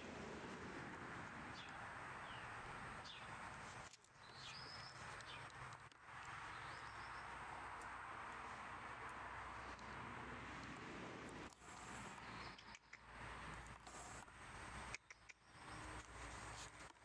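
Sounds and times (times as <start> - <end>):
high bird chirps: 14.9 - 15.8.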